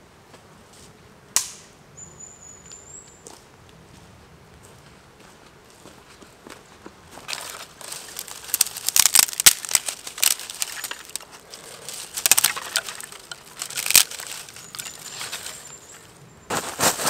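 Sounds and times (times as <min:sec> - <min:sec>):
dry leaves and twigs crunching: 0:07.1 - 0:17.0.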